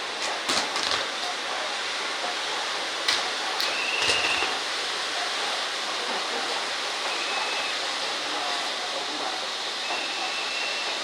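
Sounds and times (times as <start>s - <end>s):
firework hissing: 3.0s - 5.1s
short high whistle: 3.7s - 4.5s, 9.9s - 11.0s.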